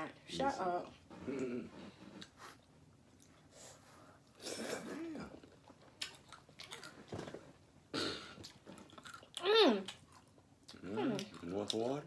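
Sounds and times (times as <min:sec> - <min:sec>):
chewing with wet clicks: 0:05.6 - 0:07.0, 0:08.4 - 0:12.0.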